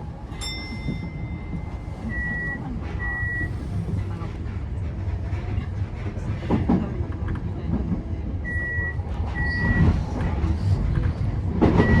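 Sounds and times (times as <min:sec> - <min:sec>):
train humming at platform: 0:00.0 - 0:12.0
electronic warning beeps: 0:02.0 - 0:03.5, 0:11.8 - 0:12.0.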